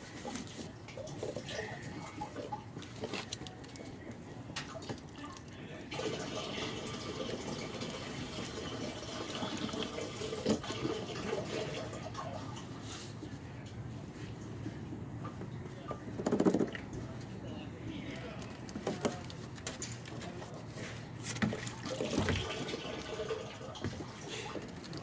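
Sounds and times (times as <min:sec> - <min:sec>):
clicks and handling noises: 0:02.4 - 0:05.6
liquid pouring from a jug: 0:05.9 - 0:12.7, 0:21.5 - 0:25.0.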